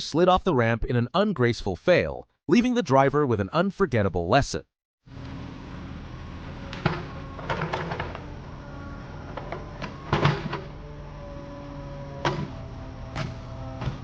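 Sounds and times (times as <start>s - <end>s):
heavy machinery engine running: 5.2s - 14.0s.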